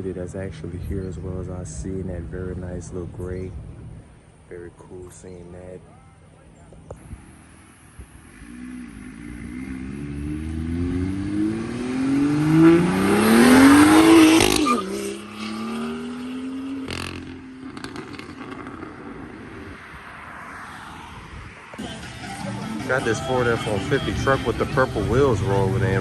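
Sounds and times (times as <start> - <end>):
car engine accelerating: 6.9 - 26.0.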